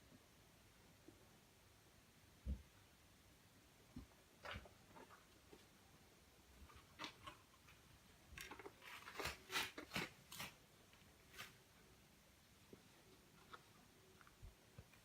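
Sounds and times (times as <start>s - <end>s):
cat scratching and rustling: 6.6s - 11.8s.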